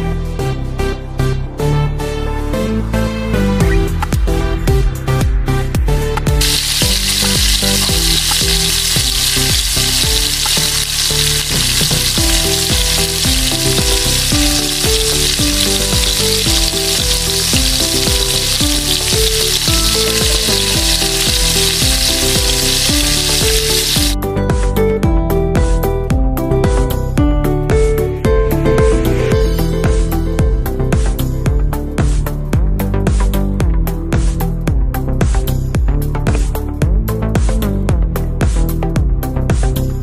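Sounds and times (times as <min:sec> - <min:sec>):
background music: 0:00.0 - 0:40.0
food frying in hot oil: 0:06.4 - 0:24.2.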